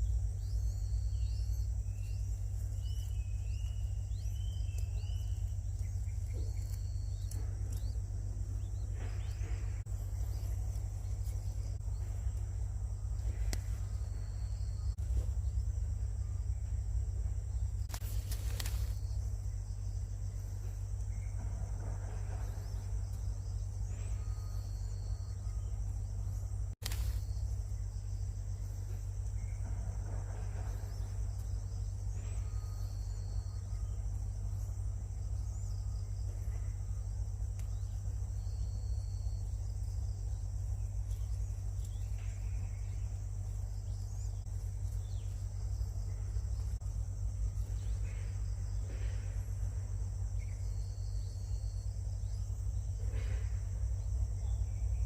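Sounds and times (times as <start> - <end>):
insect chorus buzzing: 0.0 - 55.0
low rumble: 0.0 - 55.0.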